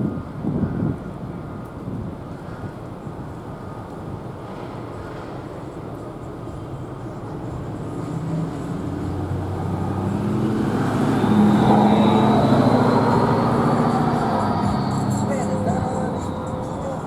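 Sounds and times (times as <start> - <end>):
vehicle engine passing by: 7.8 - 17.0.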